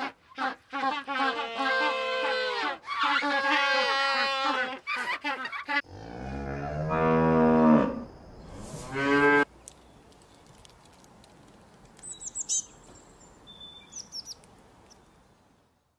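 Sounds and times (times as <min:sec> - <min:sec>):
faint high bird chirps: 0:12.0 - 0:15.2.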